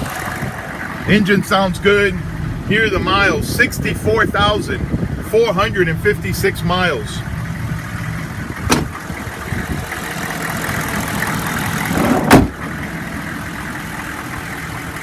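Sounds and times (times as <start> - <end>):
diesel engine idling: 0.0 - 15.0
loud thump: 8.7 - 9.0, 12.2 - 12.6.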